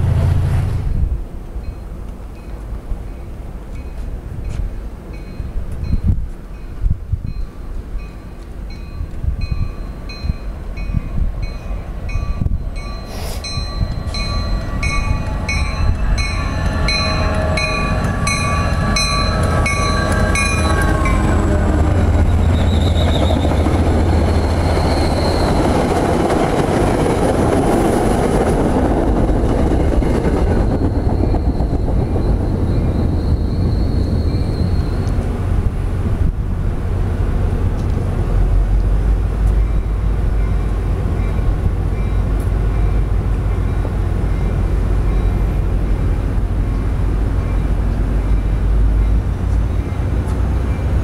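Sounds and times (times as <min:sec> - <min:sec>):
train rumbling past: 0:00.0 - 0:51.0
crossing bell ringing: 0:01.6 - 0:22.3
train wheel squeals: 0:07.3 - 0:26.7, 0:29.5 - 0:35.4.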